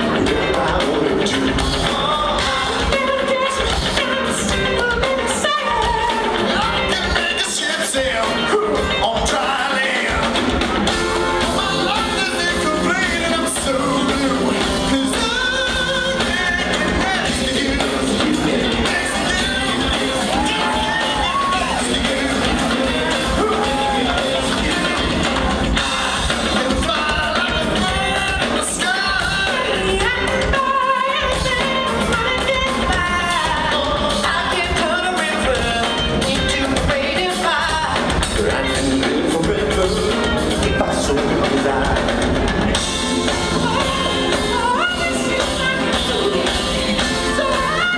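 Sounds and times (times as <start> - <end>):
band with steady beat: 0.0 - 47.9
male group singing in harmony: 6.2 - 10.4, 11.2 - 42.2.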